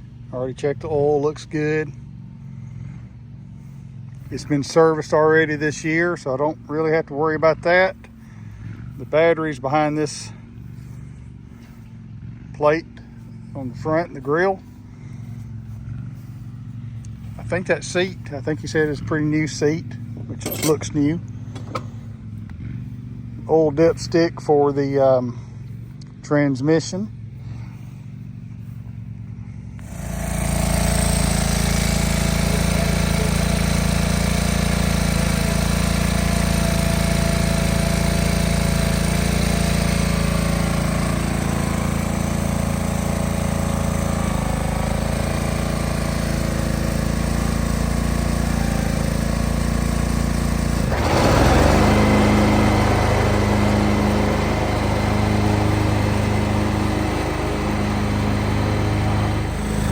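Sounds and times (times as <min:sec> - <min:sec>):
garden tractor engine running: 0:00.0 - 0:59.9.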